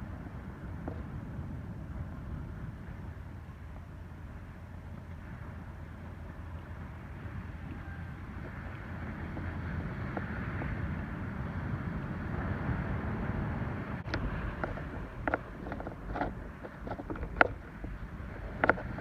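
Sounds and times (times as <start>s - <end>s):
wind buffeting microphone: 0.0s - 19.0s
ocean surf: 5.2s - 19.0s
sharp clicks and knocks: 14.1s - 19.0s.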